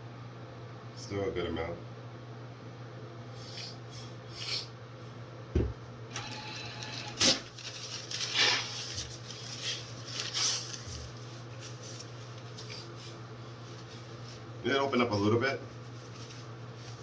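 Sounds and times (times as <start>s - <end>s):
low thump: 5.6s - 5.8s.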